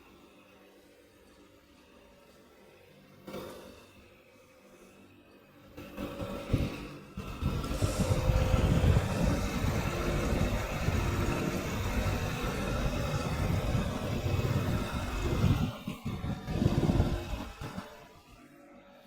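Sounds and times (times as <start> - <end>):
air conditioner unit rumbling: 6.5 - 18.0.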